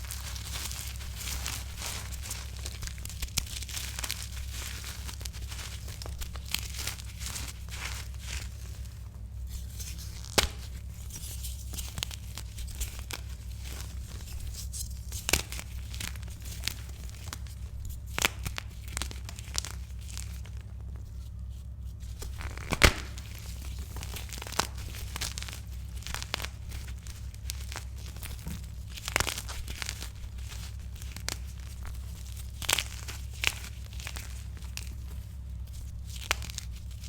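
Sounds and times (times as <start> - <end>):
chalk crunching and cracking: 0.0 - 37.0
low steady hum: 0.0 - 37.0
soft crumbling: 0.0 - 37.0.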